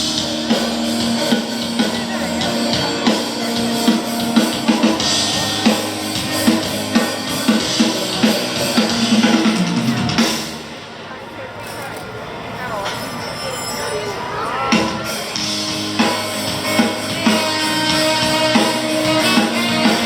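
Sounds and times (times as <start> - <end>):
band playing: 0.0 - 11.0, 14.4 - 20.0
cymbals: 0.0 - 11.1.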